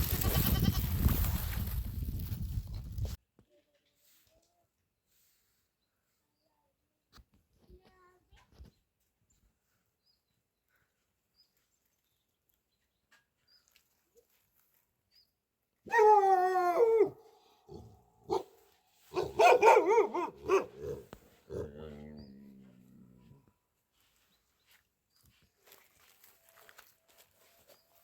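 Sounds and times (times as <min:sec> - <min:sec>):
goat bleating: 0:00.0 - 0:01.0.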